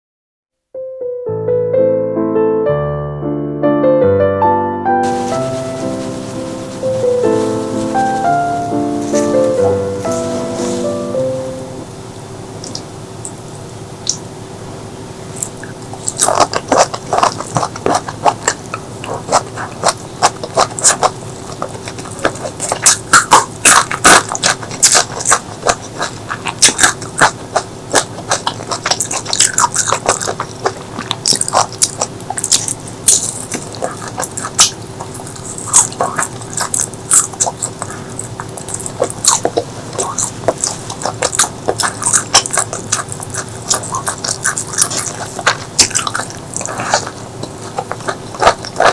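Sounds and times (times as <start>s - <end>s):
chewing and biting food: 15.3s - 48.9s.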